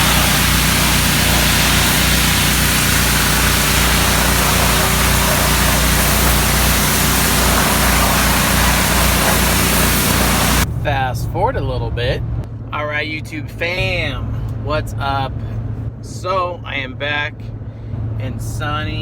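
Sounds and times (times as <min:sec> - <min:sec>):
pressure washer engine droning: 0:00.0 - 0:10.7
water spray hissing: 0:00.0 - 0:10.7.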